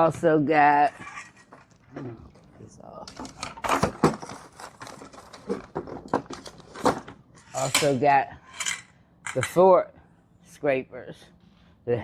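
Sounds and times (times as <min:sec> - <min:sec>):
tools clattering: 0:03.1 - 0:09.6
packaging crinkling: 0:03.8 - 0:06.8.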